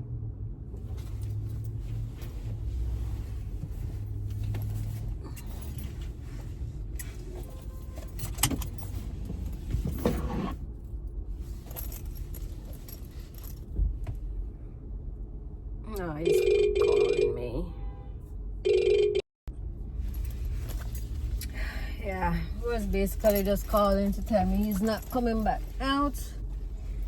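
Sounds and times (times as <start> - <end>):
car engine humming: 0.7 - 10.7, 19.6 - 27.0.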